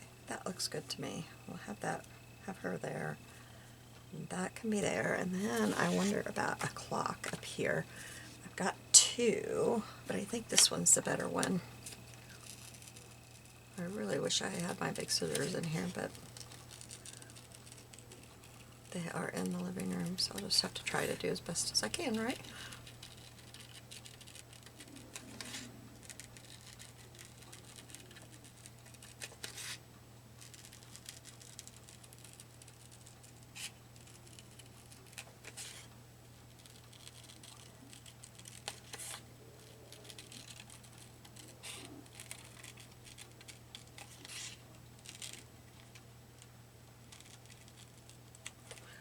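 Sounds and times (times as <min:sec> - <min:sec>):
faint low hum: 0:00.0 - 0:49.0
scissors snipping paper: 0:14.2 - 0:29.8, 0:30.4 - 0:35.9, 0:36.5 - 0:46.0, 0:47.1 - 0:48.9.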